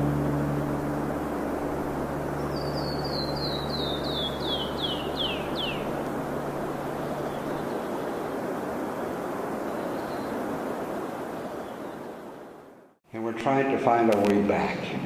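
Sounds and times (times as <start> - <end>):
low steady hum: 0.0 - 12.7
wind or surf rushing: 0.0 - 13.0
songbird whistling: 2.4 - 6.0.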